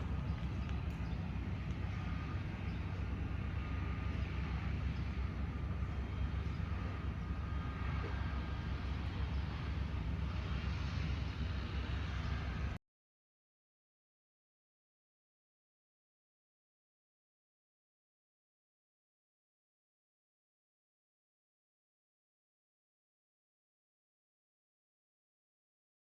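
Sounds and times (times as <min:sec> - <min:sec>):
jet engines rumbling: 0:00.0 - 0:12.8.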